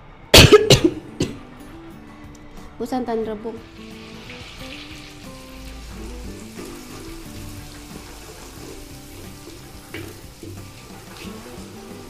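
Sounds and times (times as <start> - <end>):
background music: 0.0 - 12.0
spice paste sizzling in hot oil: 3.6 - 12.0.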